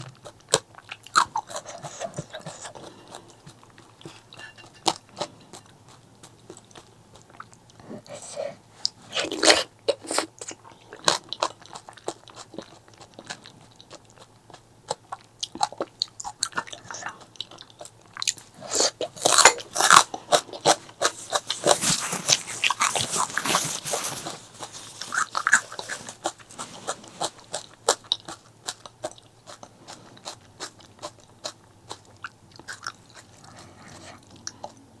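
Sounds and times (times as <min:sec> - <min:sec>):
crunchy bites and chewing: 0:00.0 - 0:34.8.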